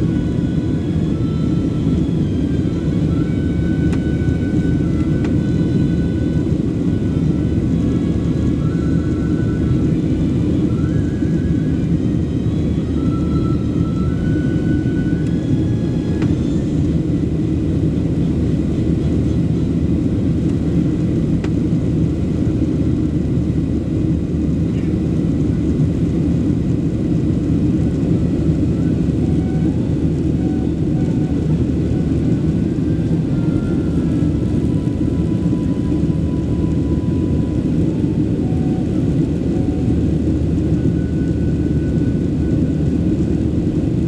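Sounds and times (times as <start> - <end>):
jet engine roar in cabin: 0.0 - 44.0.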